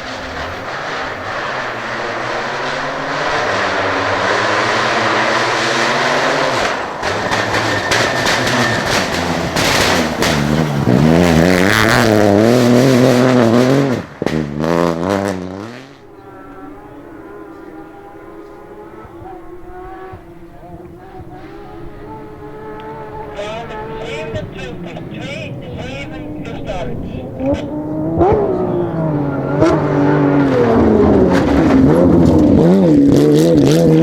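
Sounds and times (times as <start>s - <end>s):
rally car engine revving: 0.0s - 34.0s
engine cracks and pops: 6.5s - 11.8s, 27.4s - 28.5s, 29.6s - 34.0s.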